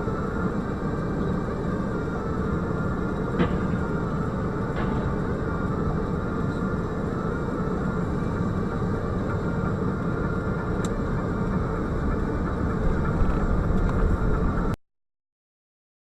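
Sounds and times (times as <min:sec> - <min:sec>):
car engine rumble: 0:00.0 - 0:14.8
road noise: 0:00.0 - 0:14.8.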